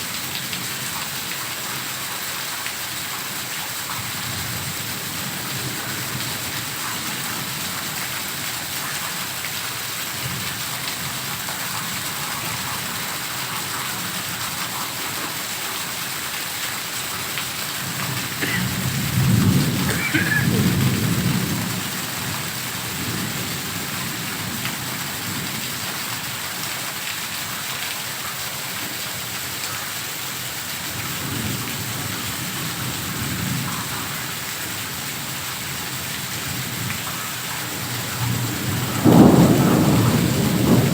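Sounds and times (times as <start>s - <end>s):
heavy rain hissing: 0.0s - 40.9s
thunder rumbling: 18.0s - 24.2s, 38.2s - 40.9s.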